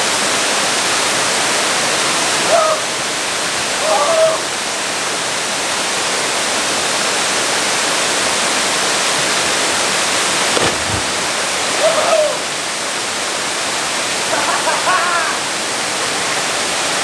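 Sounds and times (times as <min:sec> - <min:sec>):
waterfall rushing: 0:06.4 - 0:17.0.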